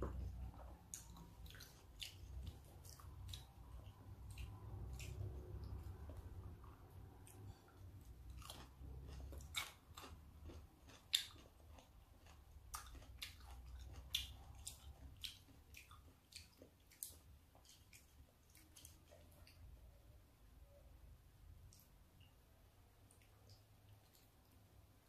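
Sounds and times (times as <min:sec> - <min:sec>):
wet chewing mouth clicks: 0:00.1 - 0:07.6, 0:08.2 - 0:19.6.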